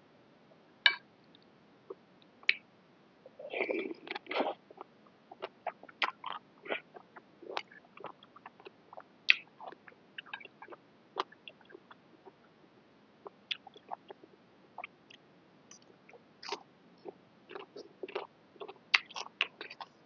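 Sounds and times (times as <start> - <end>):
person chewing noodles: 5.4 - 12.0, 15.7 - 20.0.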